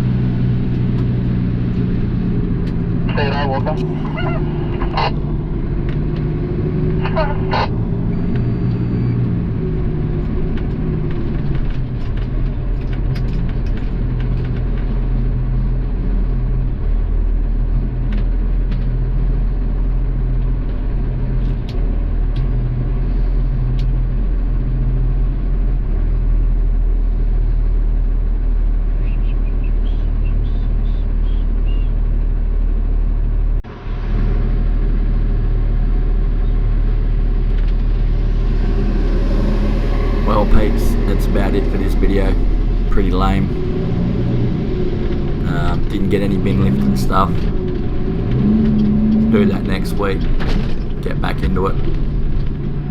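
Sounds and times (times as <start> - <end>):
diesel engine droning: 0.0 - 52.9.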